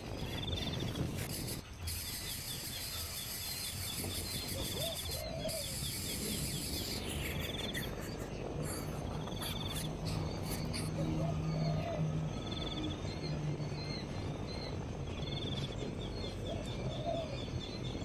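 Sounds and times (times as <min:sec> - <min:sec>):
insect hiss: 0:00.0 - 0:18.0
lower rounder bird calls: 0:00.0 - 0:18.0
high bird chirps: 0:00.4 - 0:13.3.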